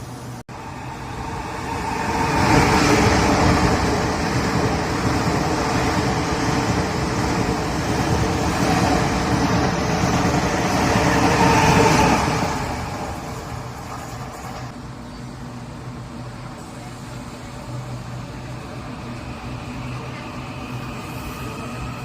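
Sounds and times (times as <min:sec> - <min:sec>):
train passing: 0:00.0 - 0:22.0.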